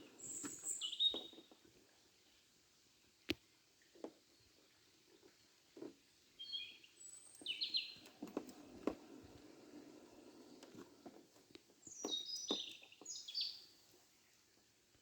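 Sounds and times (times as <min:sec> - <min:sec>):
small bird chirping: 0:00.0 - 0:01.6, 0:06.4 - 0:08.2, 0:11.7 - 0:14.3
faint knocks and rustles: 0:00.0 - 0:02.3, 0:03.2 - 0:06.3, 0:07.1 - 0:15.0.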